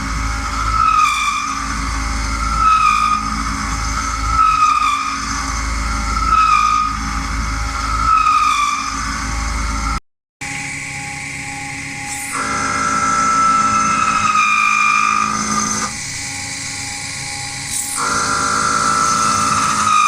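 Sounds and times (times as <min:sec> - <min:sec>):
squealing whine of metal cutting: 0:00.0 - 0:20.0
machine tool hum: 0:08.8 - 0:20.0.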